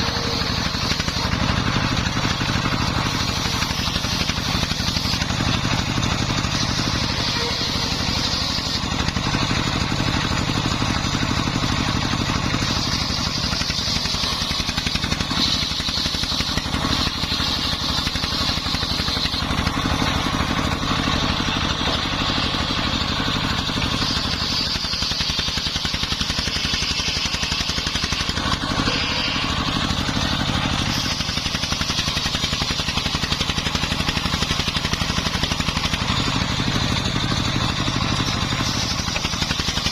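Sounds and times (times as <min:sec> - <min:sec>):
diesel engine running: 0:00.0 - 0:39.9
saw blade cutting wood: 0:00.0 - 0:39.9.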